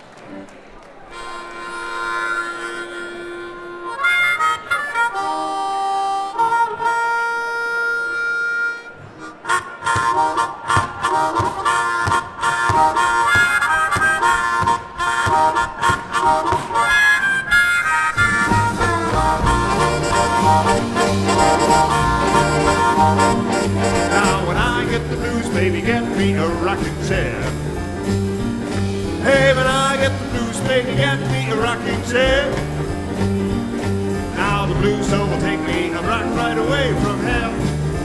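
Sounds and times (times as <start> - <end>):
harmonica long notes: 0.3 - 38.0
blues band swinging rhythm: 1.1 - 38.0
bass line: 18.2 - 38.0.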